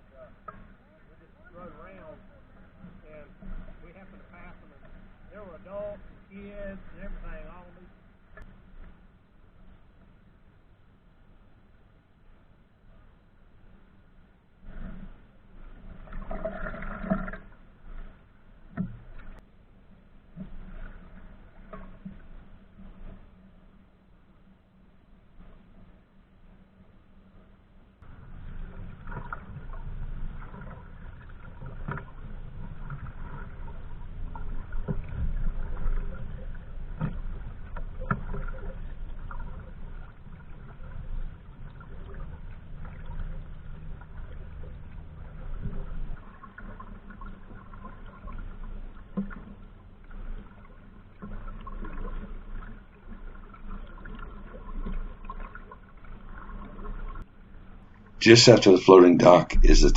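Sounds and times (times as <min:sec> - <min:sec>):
paddle splashes: 0:28.0 - 0:57.3
water trickling: 0:28.0 - 0:58.2
steady low rumble: 0:58.2 - 0:59.9.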